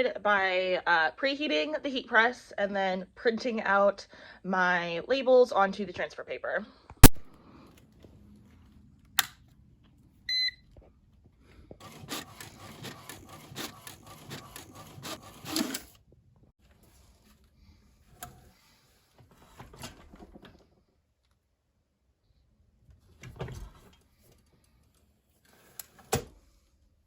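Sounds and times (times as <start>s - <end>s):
printer click: 11.8s - 15.9s
printer feeding and printing: 11.8s - 16.0s.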